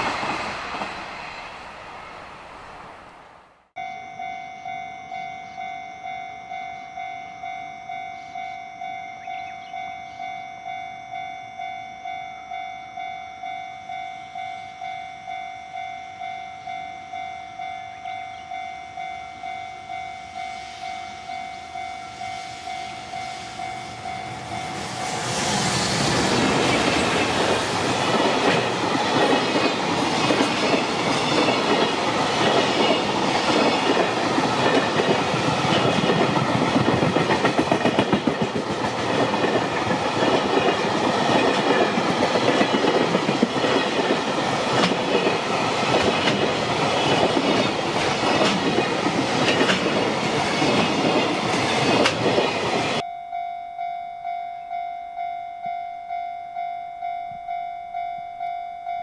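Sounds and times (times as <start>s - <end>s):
electric locomotive passing: 0.0s - 53.1s
level-crossing warning tone: 3.8s - 59.0s
wheels clacking over rail joints: 24.3s - 53.0s.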